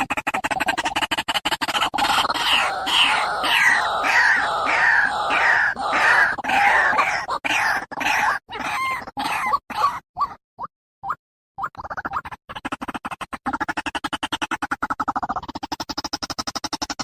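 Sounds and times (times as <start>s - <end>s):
waterhen calling: 2.0s - 10.0s.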